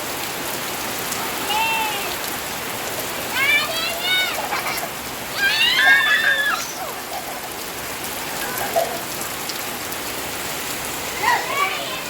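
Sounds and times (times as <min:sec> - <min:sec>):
rain pattering on surfaces: 0:00.0 - 0:12.0
child calling out: 0:01.3 - 0:02.2, 0:03.3 - 0:04.6, 0:05.3 - 0:07.0, 0:11.2 - 0:12.0.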